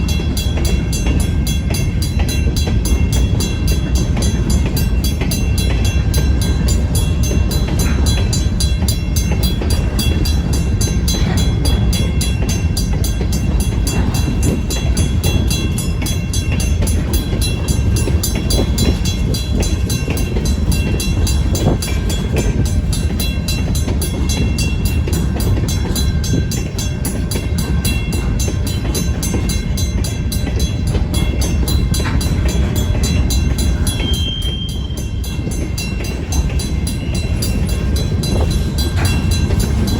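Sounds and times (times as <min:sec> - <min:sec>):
crossing bell ringing: 0:00.0 - 0:39.9
freight train wheels rumbling: 0:00.0 - 0:39.9.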